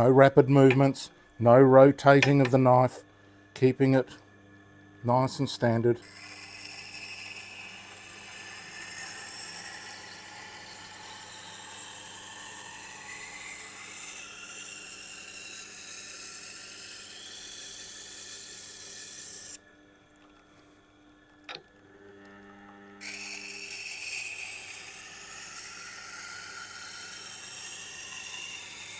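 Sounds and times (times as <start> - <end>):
knife grinding on a whetstone: 13.4 - 19.6, 23.0 - 28.9.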